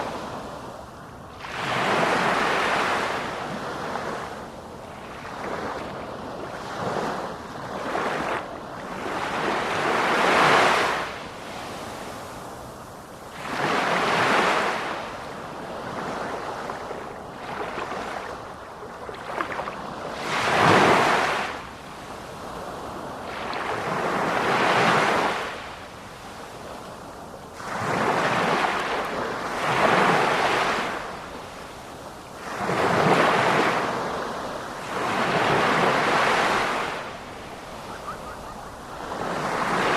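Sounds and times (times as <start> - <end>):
sea waves breaking: 22.5 - 39.9.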